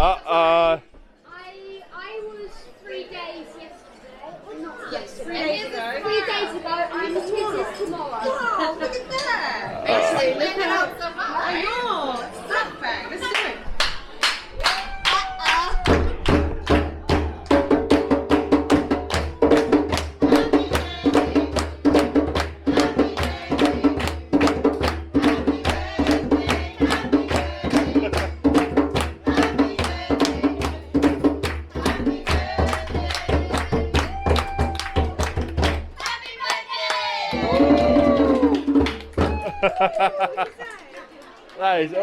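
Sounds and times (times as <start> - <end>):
hand drum beat: 15.6 - 36.0, 37.3 - 39.7
group singing: 19.4 - 34.4, 36.0 - 38.4.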